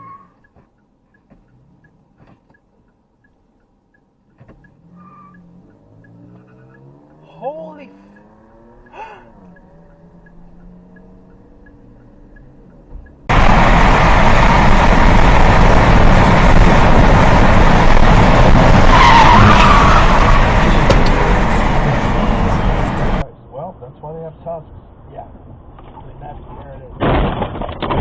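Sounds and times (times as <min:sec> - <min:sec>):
wavering squeal: 0:00.0 - 0:00.5, 0:04.8 - 0:06.9
loud rushing vehicle noise: 0:04.8 - 0:23.2.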